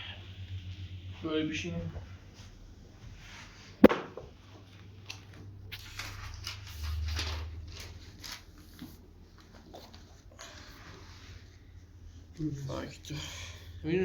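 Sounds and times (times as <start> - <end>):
sharp knock: 3.8 - 4.2
rustling and scraping handling: 4.6 - 12.3.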